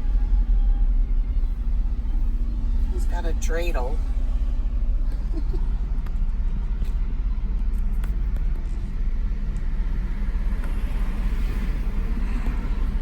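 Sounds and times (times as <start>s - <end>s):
engine and road noise rumble: 0.0s - 13.0s.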